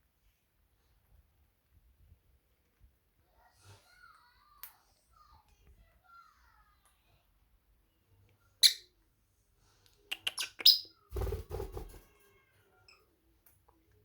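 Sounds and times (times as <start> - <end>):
parrot chirping: 8.6 - 9.0, 10.1 - 11.0.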